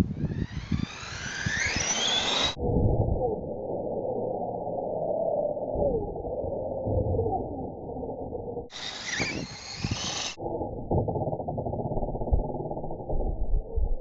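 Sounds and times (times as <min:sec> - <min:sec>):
toy truck motor whining: 0:00.3 - 0:02.6, 0:08.7 - 0:10.4.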